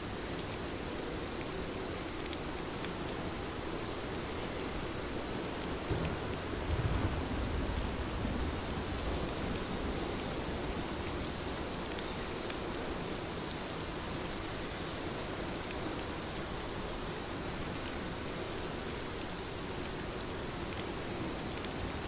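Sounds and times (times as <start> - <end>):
heavy rain: 0.0 - 22.0.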